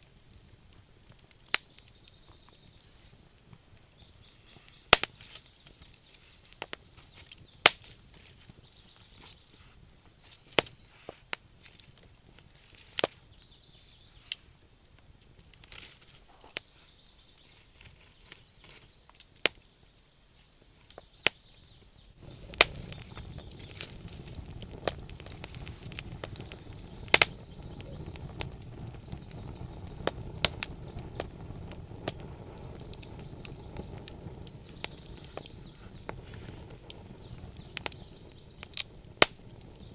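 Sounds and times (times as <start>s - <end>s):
wood fire crackling: 0.0s - 39.9s
low rumble of flames: 21.6s - 39.9s.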